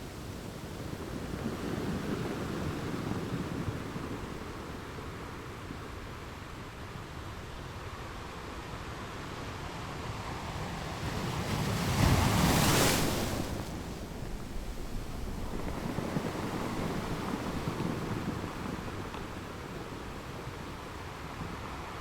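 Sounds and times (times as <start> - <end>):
ocean waves breaking: 10.0 - 22.0.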